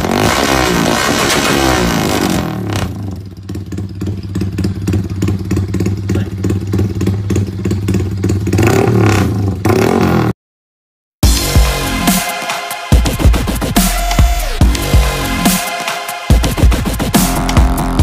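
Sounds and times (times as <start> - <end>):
motorcycle engine revving and idling: 0.0 - 10.4.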